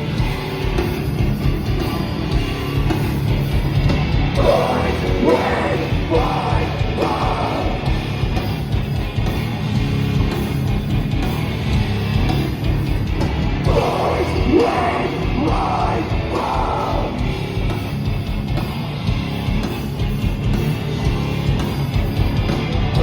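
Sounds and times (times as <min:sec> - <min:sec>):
metal band playing loud: 0:00.0 - 0:23.0
vocalist screaming: 0:04.4 - 0:08.0, 0:13.7 - 0:17.4.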